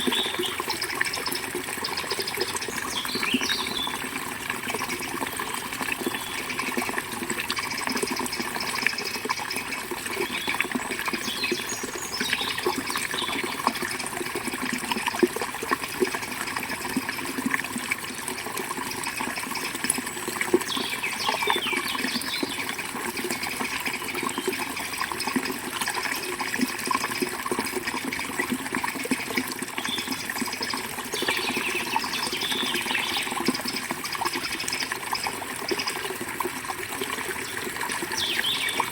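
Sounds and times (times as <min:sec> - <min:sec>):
birds chirping: 0:00.0 - 0:04.0, 0:10.2 - 0:13.6, 0:20.6 - 0:22.7, 0:31.2 - 0:33.8, 0:37.4 - 0:38.9
river water burbling: 0:00.0 - 0:38.9.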